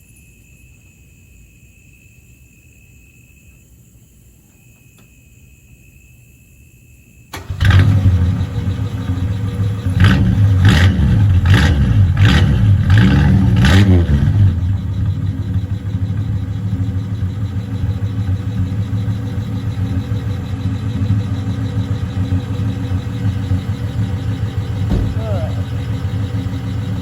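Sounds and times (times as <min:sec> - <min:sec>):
car engine idling: 0:07.3 - 0:27.0
car engine throttle blips: 0:07.3 - 0:27.0.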